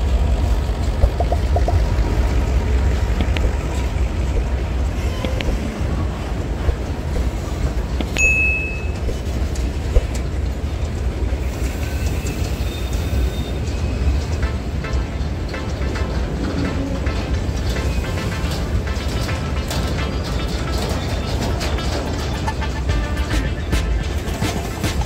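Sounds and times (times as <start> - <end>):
wagons clicking and knocking: 0.0 - 11.3, 14.0 - 25.0
freight train rumbling past: 0.0 - 25.0
high-pitched train squeal: 4.9 - 6.3, 11.3 - 14.5.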